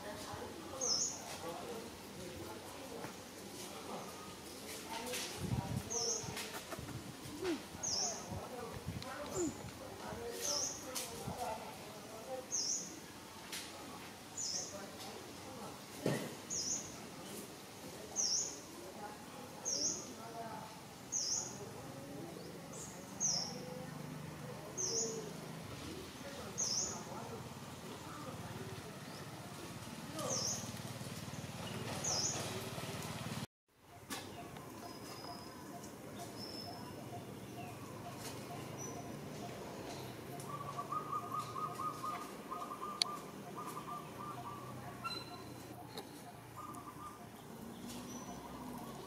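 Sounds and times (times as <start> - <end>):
high bird chirp: 34.3 - 49.0.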